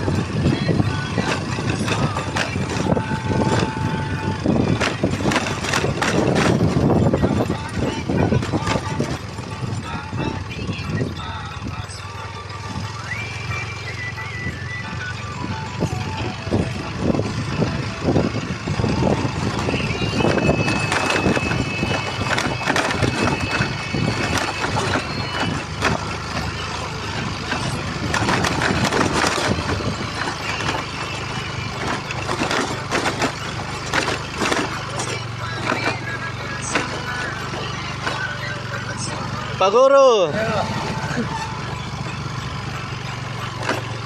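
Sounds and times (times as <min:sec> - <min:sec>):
knocks and rattles from bumps: 0:00.0 - 0:10.2, 0:15.6 - 0:39.6, 0:40.4 - 0:44.0
motorcycle engine running: 0:00.0 - 0:44.0.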